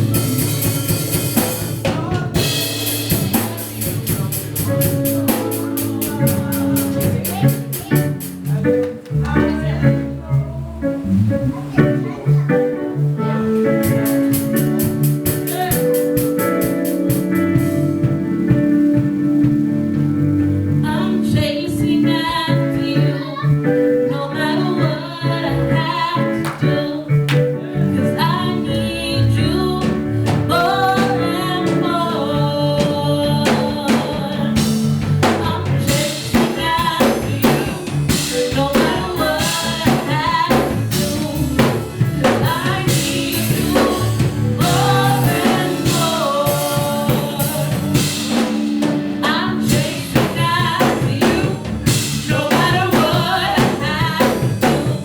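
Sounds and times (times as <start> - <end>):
gospel band with drum kit: 0.0 - 55.0
woman singing: 1.8 - 4.0, 5.3 - 8.0, 14.8 - 16.3, 20.8 - 55.0.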